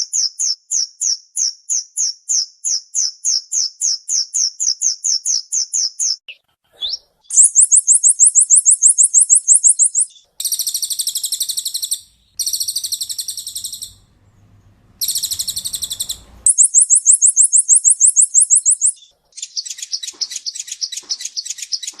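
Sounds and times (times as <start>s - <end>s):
bird singing rapid trills: 6.9s - 22.0s.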